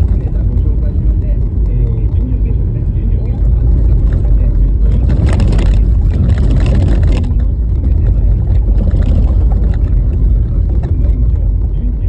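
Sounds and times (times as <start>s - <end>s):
tyres rumbling on snowy road: 0.0s - 12.0s.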